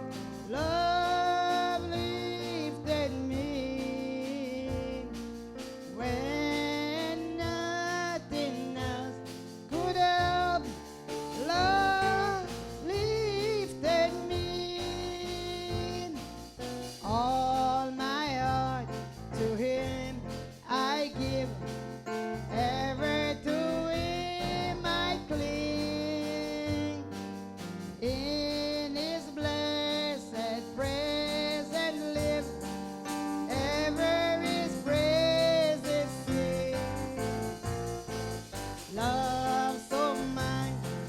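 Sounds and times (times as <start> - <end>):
person singing a hymn: 0.5 - 5.1, 6.0 - 10.8, 11.4 - 16.2, 22.5 - 27.2, 28.0 - 32.7, 33.5 - 37.5, 38.9 - 41.0
instrumental chords: 23.0 - 41.0.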